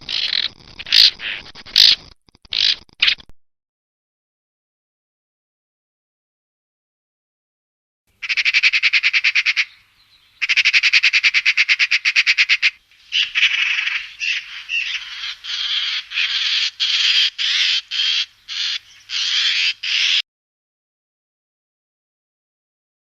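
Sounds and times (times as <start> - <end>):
bird harsh rattling calls: 0.0 - 3.2, 8.2 - 9.8, 10.4 - 20.2.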